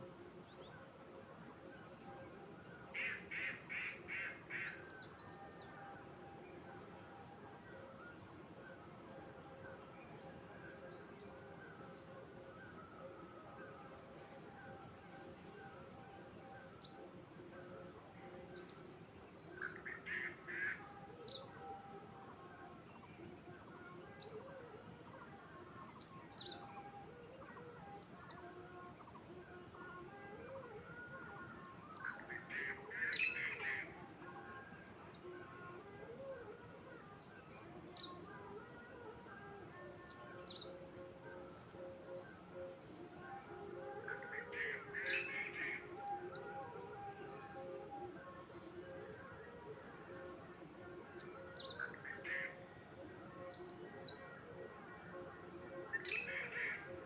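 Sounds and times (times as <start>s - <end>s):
small birds chirping: 25.8s - 30.0s.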